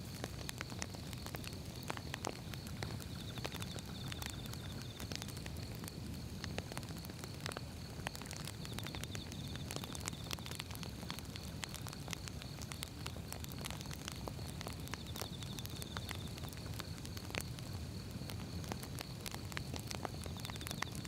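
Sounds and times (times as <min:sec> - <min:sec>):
firewood crackling and popping: 0:00.0 - 0:21.0
low rumble of flames: 0:00.0 - 0:21.0.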